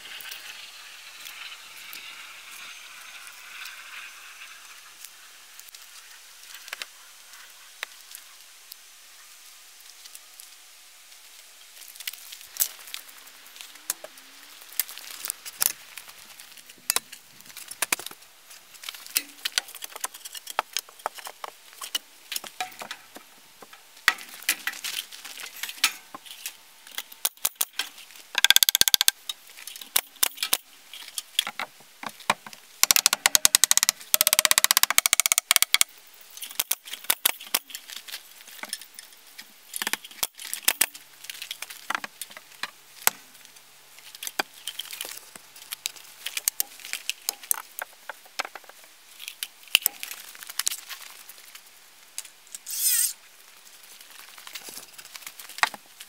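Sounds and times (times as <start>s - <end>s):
pneumatic nailer clicks and snaps: 28.4s - 29.2s, 32.8s - 37.6s.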